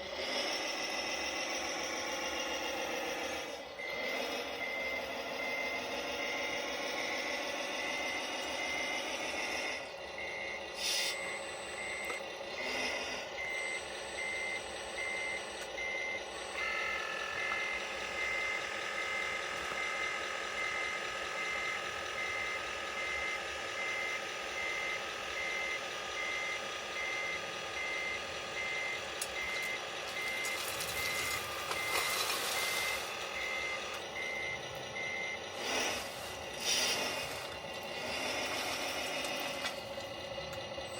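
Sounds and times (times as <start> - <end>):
engine running: 0.0 - 40.9
reversing beeper: 0.2 - 40.9.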